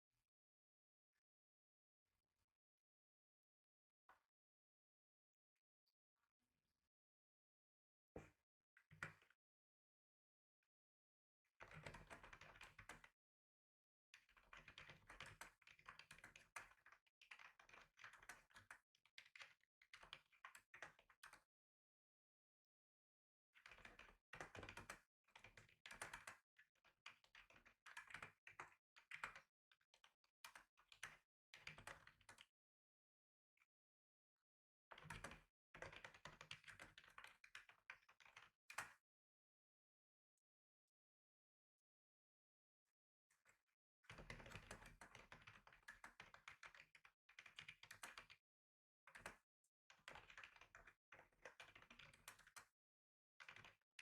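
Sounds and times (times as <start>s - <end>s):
typing on a computer keyboard: 50.0s - 52.7s, 53.4s - 53.8s.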